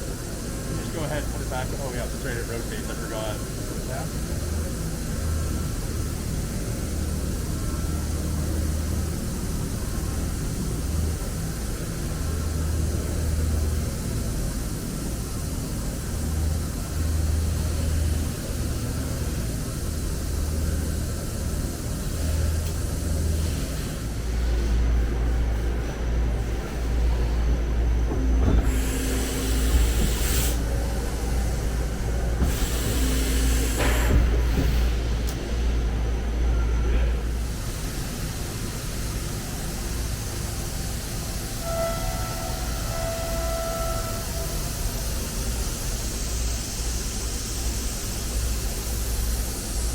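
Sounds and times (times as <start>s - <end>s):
milling machine humming: 0.0s - 49.8s
hissing bursts: 28.6s - 34.7s.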